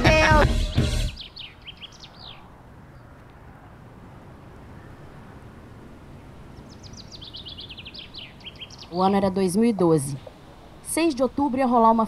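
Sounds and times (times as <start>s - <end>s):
bird chirping: 0.5s - 3.2s, 6.1s - 11.4s
low steady background noise: 1.2s - 12.0s.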